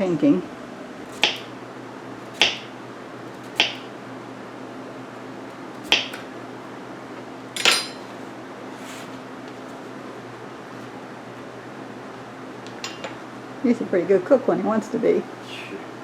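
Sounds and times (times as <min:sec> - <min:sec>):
steady low hum: 0:00.0 - 0:16.0
utensil clinking on a pan: 0:07.6 - 0:08.1.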